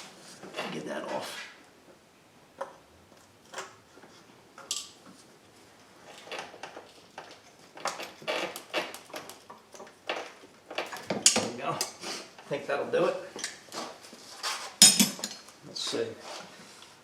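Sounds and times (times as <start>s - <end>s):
tools clicking and rattling: 4.6s - 5.2s, 5.9s - 12.5s, 13.4s - 14.0s, 14.6s - 15.6s.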